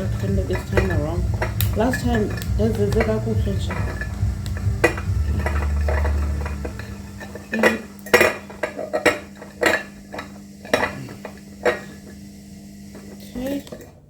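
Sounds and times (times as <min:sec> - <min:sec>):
low rumble: 0:00.0 - 0:08.6
dishes knocking and clinking: 0:00.0 - 0:12.3.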